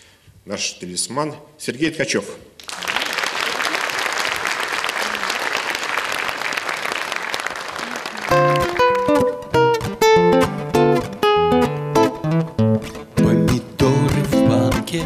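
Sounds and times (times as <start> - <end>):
audience applauding: 2.6 - 9.4
guitar playing: 8.1 - 15.0.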